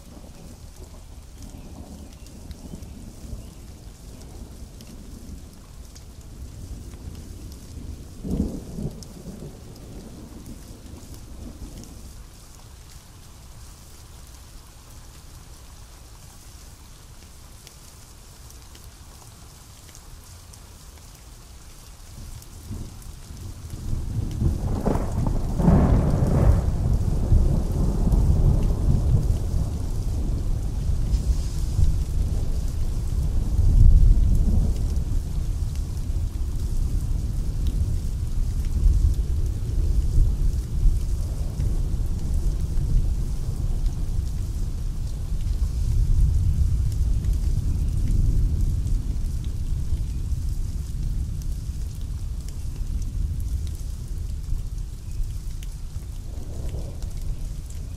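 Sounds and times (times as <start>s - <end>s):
steady rain falling: 0.0s - 57.9s
thunder rumbling and cracking: 22.6s - 54.8s, 56.0s - 57.9s.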